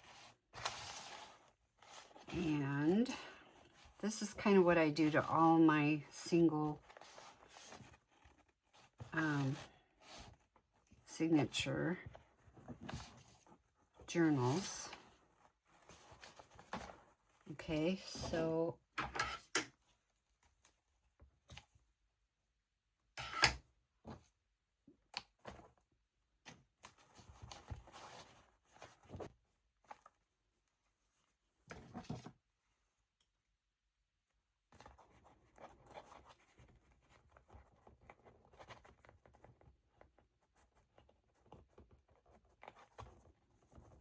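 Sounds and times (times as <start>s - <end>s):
paper rustling and scraping: 0.0s - 5.4s, 6.6s - 11.0s, 12.1s - 18.6s, 26.8s - 30.2s.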